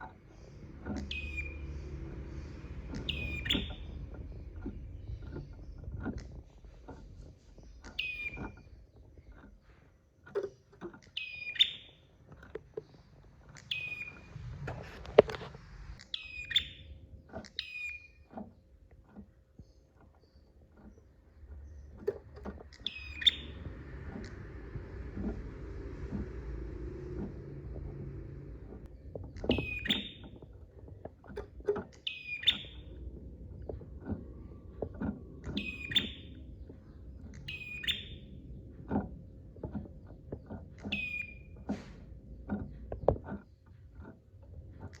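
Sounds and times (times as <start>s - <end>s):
bird calling with falling notes: 0.3s - 6.8s, 7.6s - 9.4s, 11.1s - 12.1s, 13.5s - 14.9s, 16.0s - 18.2s, 22.5s - 30.4s, 31.9s - 38.5s, 40.8s - 41.6s.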